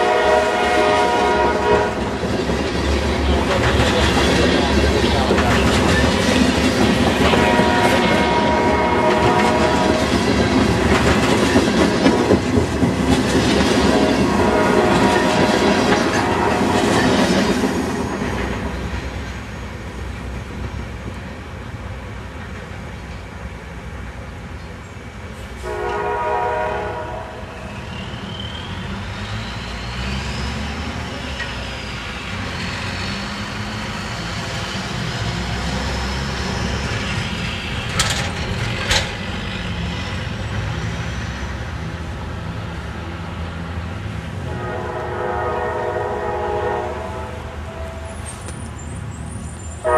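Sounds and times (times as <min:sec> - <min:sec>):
train horn: 0:00.0 - 0:02.1, 0:07.2 - 0:10.2, 0:14.2 - 0:17.2, 0:25.6 - 0:27.6, 0:44.4 - 0:48.3
locomotive engine and rail rumble: 0:00.0 - 0:49.9.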